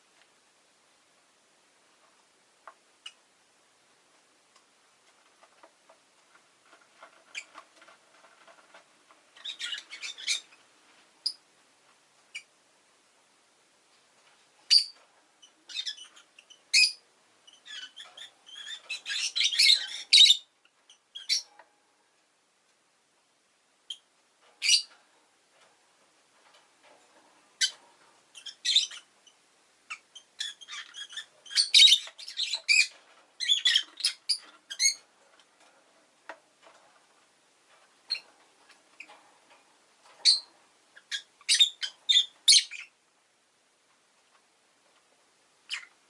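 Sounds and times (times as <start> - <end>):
lovebird chirping: 9.4 - 10.6, 14.7 - 21.5, 23.8 - 25.0, 27.6 - 35.0, 40.2 - 43.0, 45.7 - 46.0.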